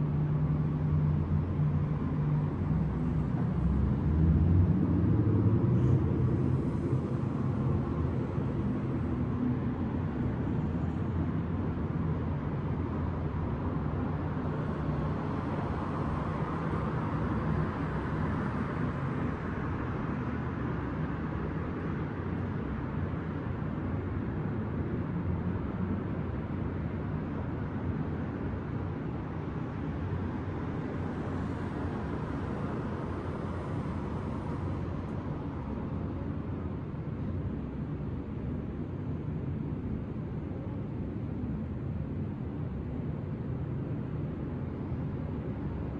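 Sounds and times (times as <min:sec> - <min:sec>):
distant city traffic hum: 0:00.0 - 0:45.9.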